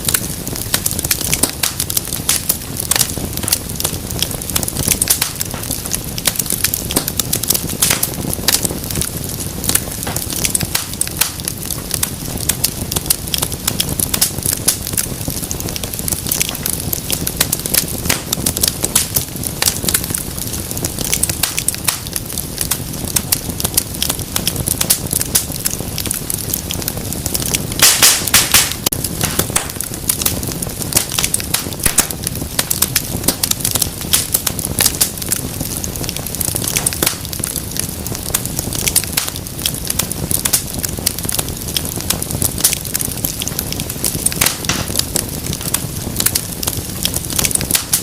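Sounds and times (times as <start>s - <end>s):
low rush of flames: 0.0s - 48.0s
wood fire crackling and popping: 0.0s - 48.0s.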